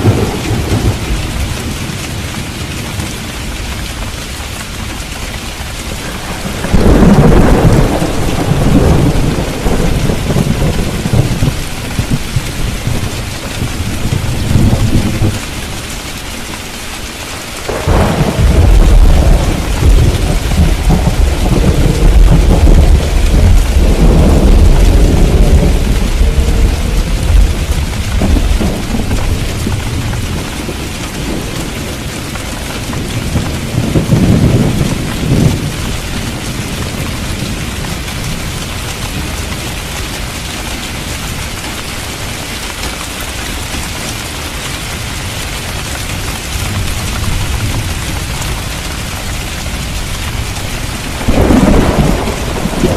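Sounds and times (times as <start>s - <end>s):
rolling thunder: 0.0s - 2.5s, 6.0s - 15.6s, 17.6s - 40.4s, 46.1s - 52.9s
steady rain: 0.0s - 52.9s.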